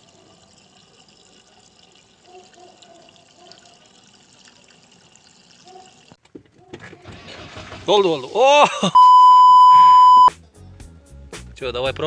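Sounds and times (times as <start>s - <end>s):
petrol trickling into fuel tank: 0.0s - 6.2s.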